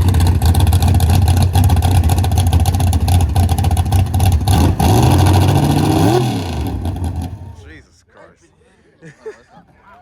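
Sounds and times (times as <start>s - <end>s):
car engine running rough and revving: 0.0s - 7.7s.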